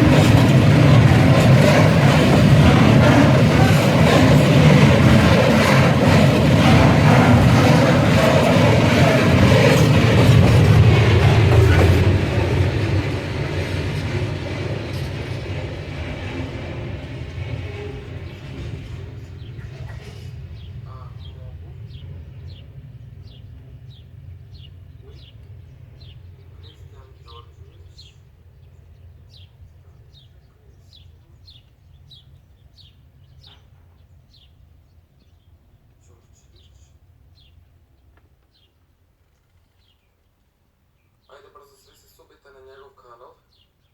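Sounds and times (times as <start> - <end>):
freight train wagons clattering: 0.0 - 23.0.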